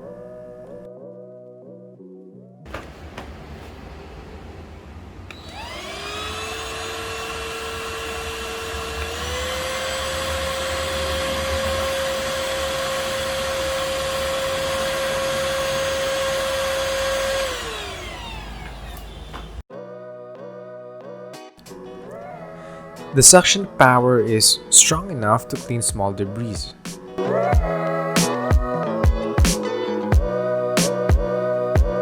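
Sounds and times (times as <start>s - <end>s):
handheld vacuum motor whining: 5.3s - 19.6s.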